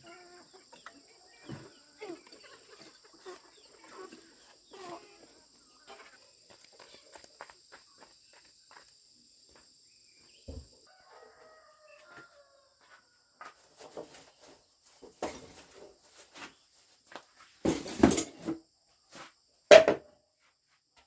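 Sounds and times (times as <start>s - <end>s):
rooster crowing: 10.9s - 13.5s
thump: 19.7s - 20.0s.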